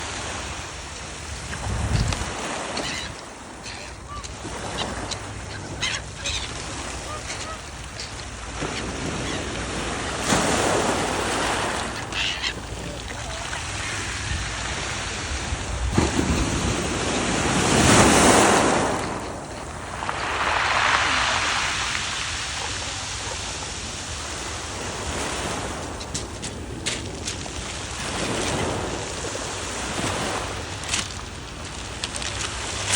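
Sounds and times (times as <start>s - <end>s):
wind rumble on microphone: 0.0s - 2.4s, 12.6s - 20.3s
waves washing onto beach: 0.0s - 32.9s.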